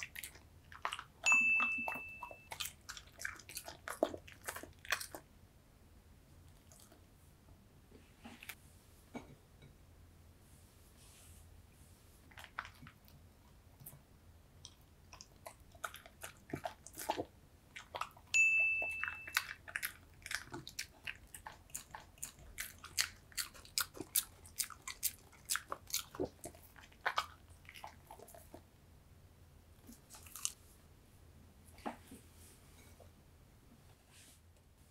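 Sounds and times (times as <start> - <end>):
dog chewing and crunching: 0.0 - 5.3, 14.6 - 28.6, 29.8 - 30.6
ringing chime: 1.3 - 2.5, 18.4 - 19.4.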